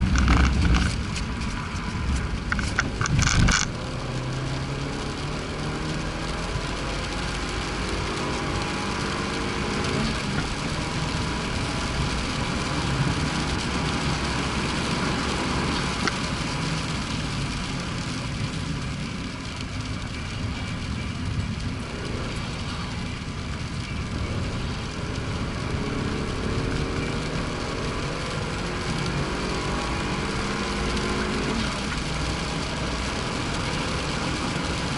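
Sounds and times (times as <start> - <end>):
car engine accelerating: 0.0 - 34.9
road and wind noise: 0.0 - 34.9.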